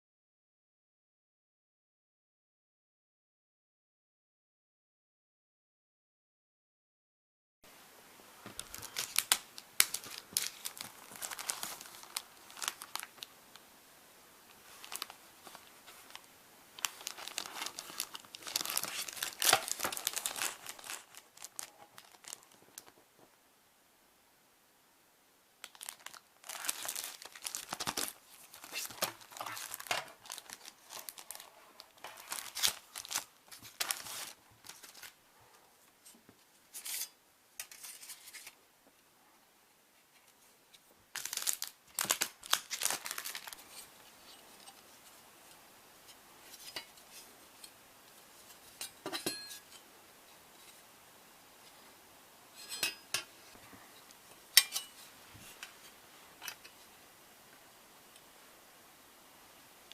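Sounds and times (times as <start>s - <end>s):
crinkling and tearing: 8.5s - 13.3s, 14.5s - 23.0s, 25.6s - 35.2s, 41.1s - 44.9s.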